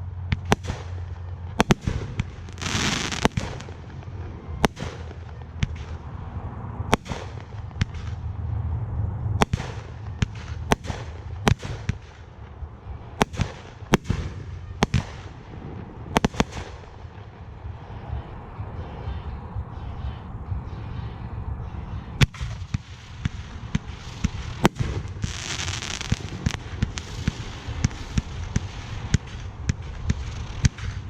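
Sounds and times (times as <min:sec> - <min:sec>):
low rumble: 0:00.0 - 0:31.0
firework shells bursting: 0:00.4 - 0:03.9.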